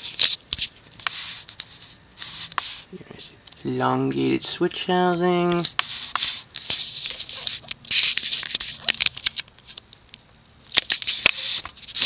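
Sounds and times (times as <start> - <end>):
scratchy rustling: 0.0 - 2.9, 5.4 - 9.8, 10.8 - 12.0.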